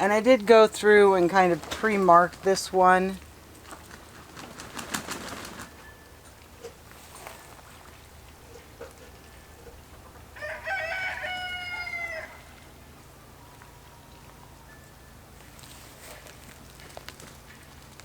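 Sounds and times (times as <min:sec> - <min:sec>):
rooster crowing: 0:10.3 - 0:12.8.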